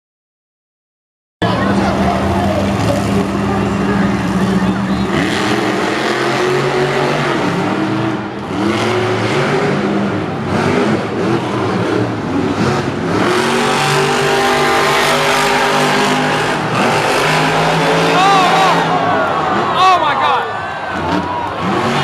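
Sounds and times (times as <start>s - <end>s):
monster truck engines revving: 1.4s - 22.0s.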